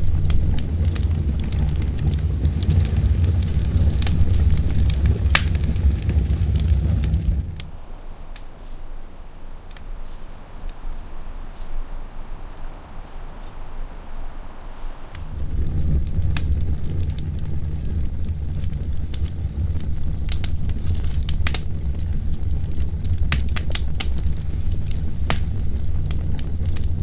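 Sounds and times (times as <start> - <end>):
wind buffeting microphone: 0.0 - 7.7, 15.2 - 27.0
campfire crackling: 0.0 - 7.8, 15.2 - 27.0.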